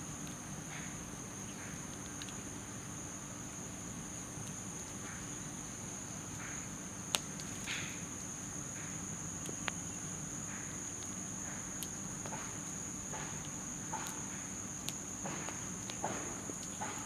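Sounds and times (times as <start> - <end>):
insects droning: 0.0 - 17.0
campfire crackling: 9.3 - 17.0
campfire popping: 11.8 - 17.0.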